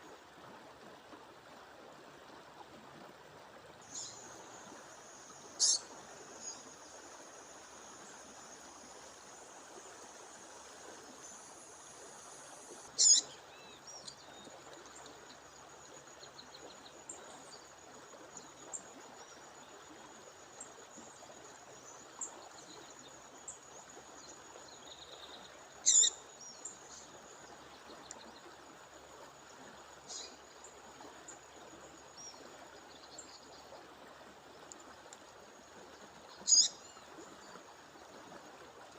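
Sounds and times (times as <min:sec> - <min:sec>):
songbird high-pitched calls: 0:03.9 - 0:04.3, 0:05.6 - 0:06.7, 0:12.9 - 0:14.4, 0:25.8 - 0:27.0, 0:30.1 - 0:30.4, 0:36.4 - 0:37.0.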